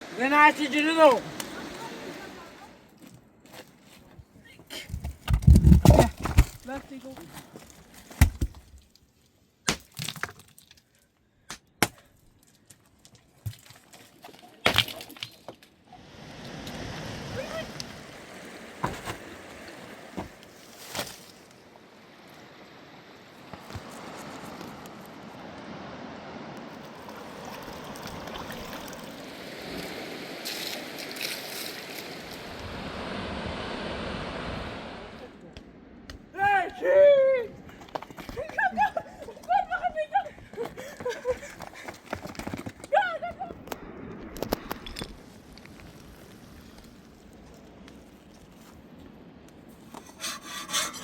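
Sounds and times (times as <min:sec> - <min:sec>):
river water rushing: 0:00.0 - 0:02.9, 0:21.4 - 0:35.3.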